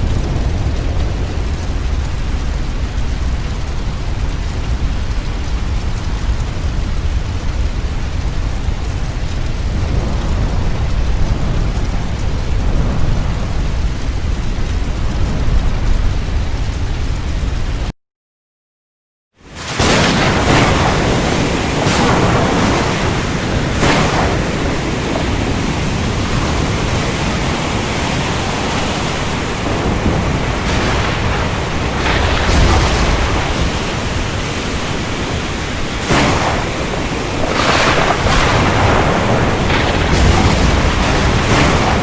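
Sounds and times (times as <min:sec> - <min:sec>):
heavy rain pouring: 0:00.0 - 0:17.9, 0:19.4 - 0:42.0.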